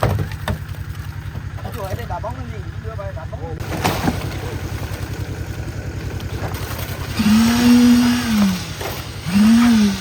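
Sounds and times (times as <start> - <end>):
mixer engine chugging: 0.0 - 10.0.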